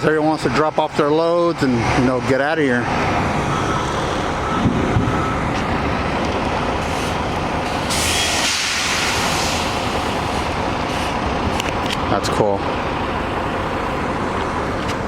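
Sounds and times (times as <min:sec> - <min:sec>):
diesel truck engine running: 0:00.0 - 0:15.0
air brakes hissing: 0:06.8 - 0:11.2.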